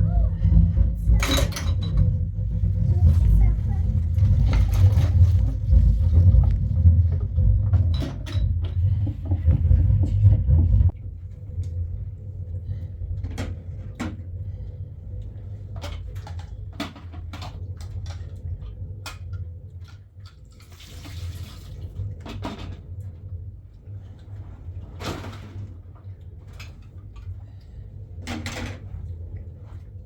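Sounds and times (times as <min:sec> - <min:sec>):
low rumble: 0:00.0 - 0:20.3
clinks and knocks: 0:01.1 - 0:02.3.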